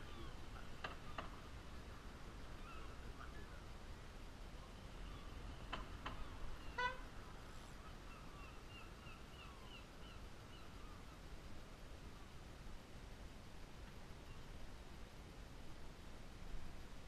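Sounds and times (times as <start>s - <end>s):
bird honking call: 6.6s - 7.1s.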